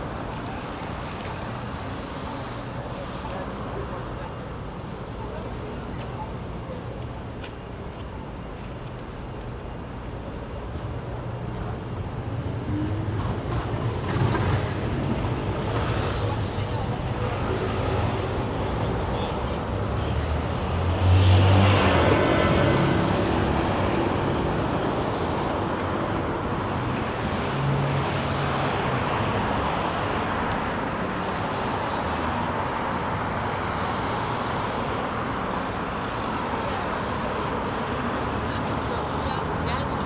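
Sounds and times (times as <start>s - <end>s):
city street traffic: 0.0s - 40.0s.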